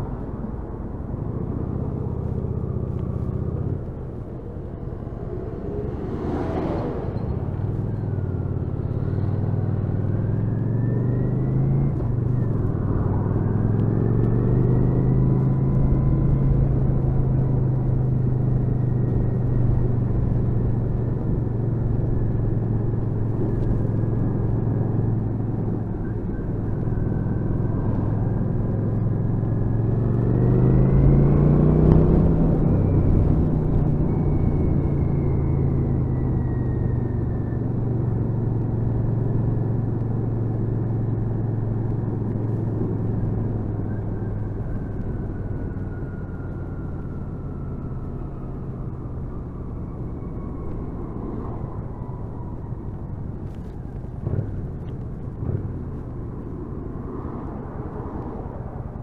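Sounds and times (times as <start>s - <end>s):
wind and road noise: 0.0s - 59.0s
motorcycle engine accelerating: 5.8s - 49.1s.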